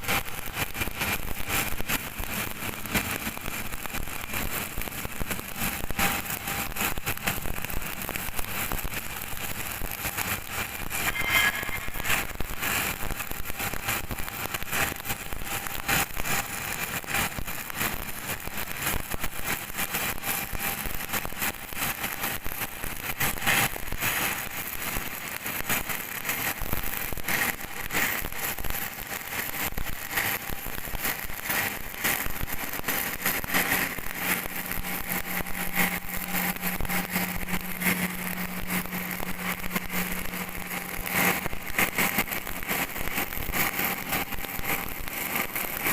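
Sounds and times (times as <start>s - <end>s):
welding arc crackling: 0.0s - 45.9s
low hum: 10.8s - 13.0s.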